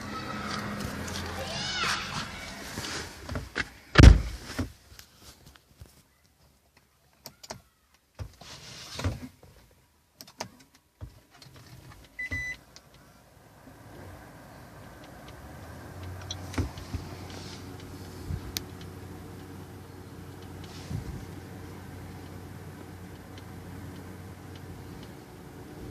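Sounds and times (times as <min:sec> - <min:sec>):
loud thump: 0:04.0 - 0:04.4.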